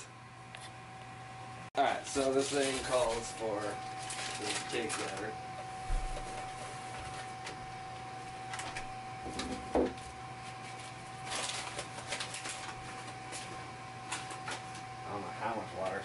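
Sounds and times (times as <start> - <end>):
electrical hum: 0.0 - 16.0
packaging rustling: 2.1 - 5.3, 10.0 - 14.9.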